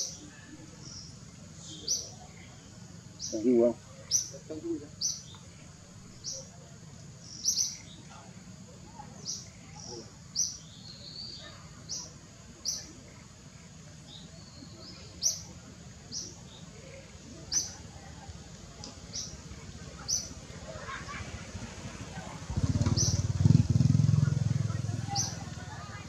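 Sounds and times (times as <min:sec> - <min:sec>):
bird chirping: 0:00.0 - 0:06.6, 0:07.2 - 0:08.3, 0:08.9 - 0:17.8, 0:19.1 - 0:19.4, 0:20.0 - 0:21.1, 0:22.5 - 0:23.3, 0:25.1 - 0:26.0.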